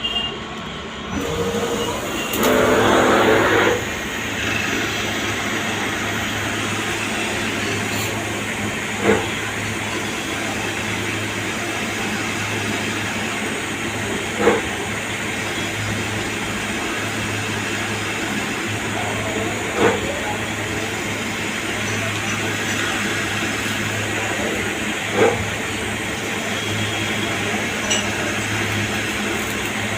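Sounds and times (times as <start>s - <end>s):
machining and coolant hiss: 0.0s - 29.9s
short loud lathe bursts: 1.1s - 6.2s.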